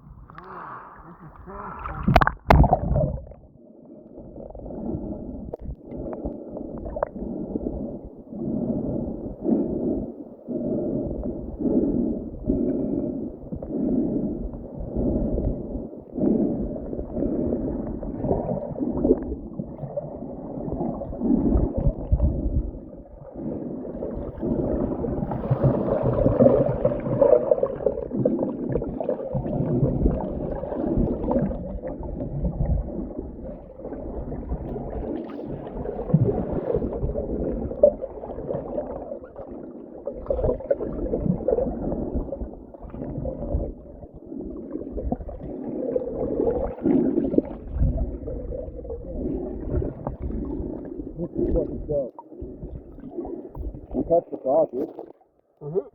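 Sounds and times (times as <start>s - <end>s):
diver breathing through regulator: 0.3s - 2.0s, 4.6s - 19.2s
bubbles gurgling: 0.8s - 3.6s, 16.2s - 55.2s.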